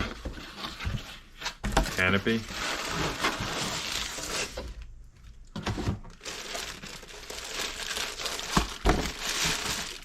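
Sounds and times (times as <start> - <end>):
packaging crinkling: 6.1 - 10.0.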